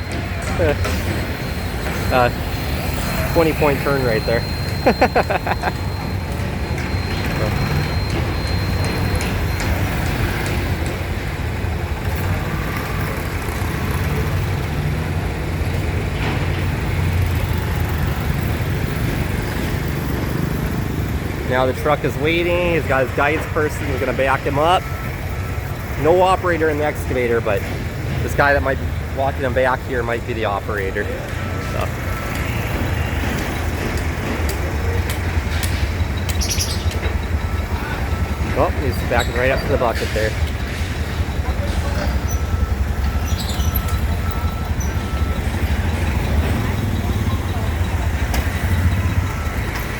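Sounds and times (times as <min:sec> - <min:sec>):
city traffic noise: 0:00.0 - 0:49.9
truck engine idling low: 0:00.0 - 0:49.9
bird chirps: 0:36.1 - 0:49.2.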